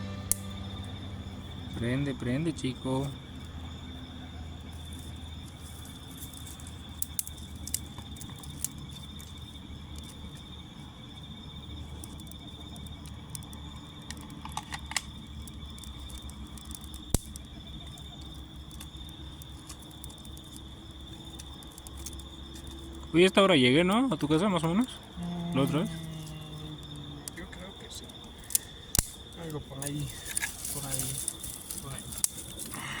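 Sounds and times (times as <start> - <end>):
crickets chirping: 0.0 - 33.0
sharp clicks and crackles: 5.6 - 10.5, 11.8 - 23.1, 28.0 - 32.8.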